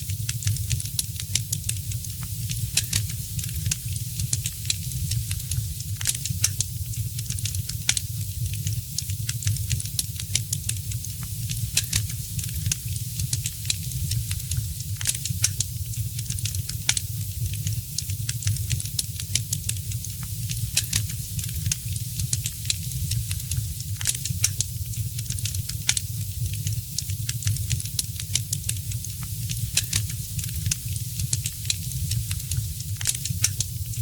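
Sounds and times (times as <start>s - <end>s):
low fire rumble: 0.0s - 34.0s
wood fire pops and snaps: 2.5s - 6.7s, 11.7s - 15.7s, 20.5s - 28.8s, 29.5s - 33.8s.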